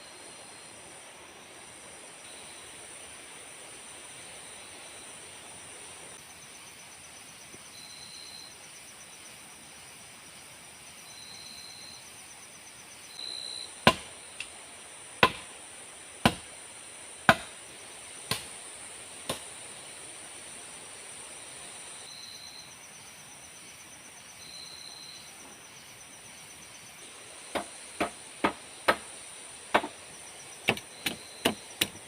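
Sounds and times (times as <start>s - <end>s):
hand tool striking wood: 13.8s - 14.1s, 15.2s - 15.5s, 16.2s - 16.5s, 17.3s - 17.5s, 18.3s - 18.5s, 27.5s - 29.1s, 29.7s - 30.0s, 30.6s - 32.0s.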